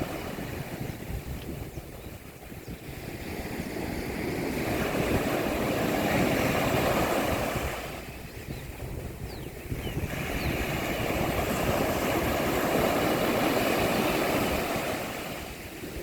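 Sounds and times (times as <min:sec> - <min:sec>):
sea wave breaking on beach: 0:10.1 - 0:15.7.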